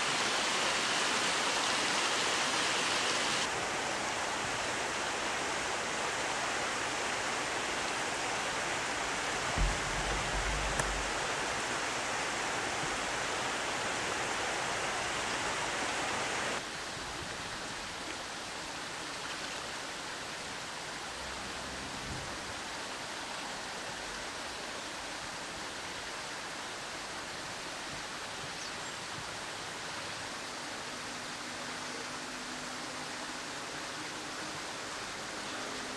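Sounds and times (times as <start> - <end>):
river water rushing: 0.0 - 35.9
low thump: 9.4 - 11.3.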